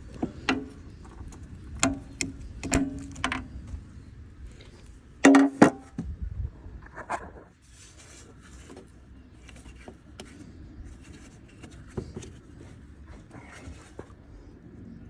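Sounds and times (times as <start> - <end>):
tools clicking and knocking on engine parts: 0.0 - 3.7
low steady hum: 0.0 - 15.0.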